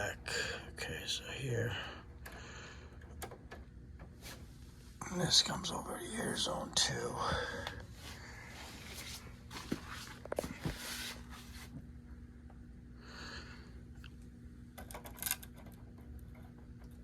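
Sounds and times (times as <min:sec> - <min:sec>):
faint steady hum: 0:00.0 - 0:17.0
short rustles: 0:07.8 - 0:11.8.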